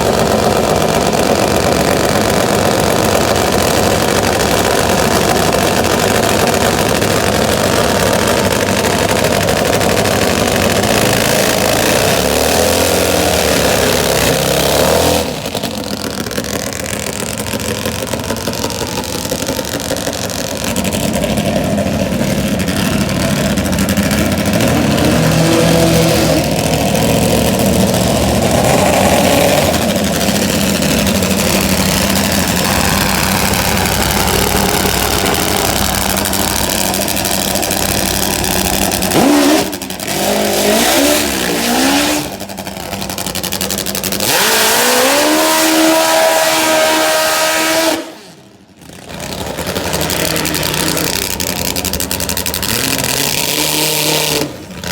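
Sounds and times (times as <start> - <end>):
drag motorcycle engines revving: 0.0 - 54.9.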